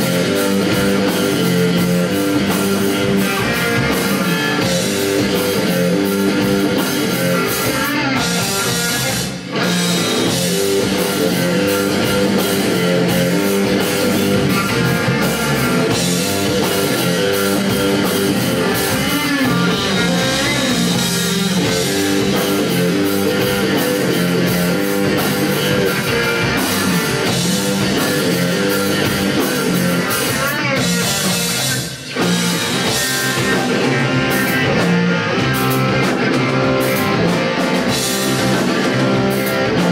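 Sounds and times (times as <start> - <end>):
drum kit: 0.0 - 39.9
electric guitar: 0.0 - 39.9.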